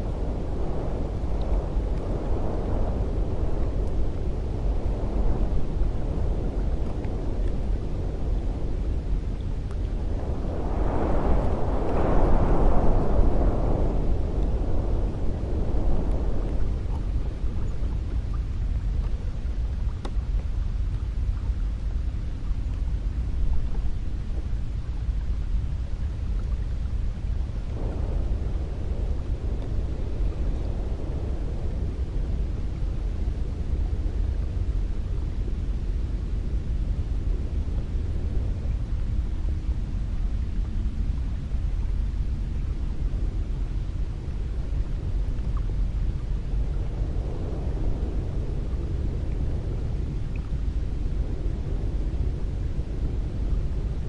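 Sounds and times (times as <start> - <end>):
wind blowing: 0.0 - 54.0
faint click: 20.0 - 20.2.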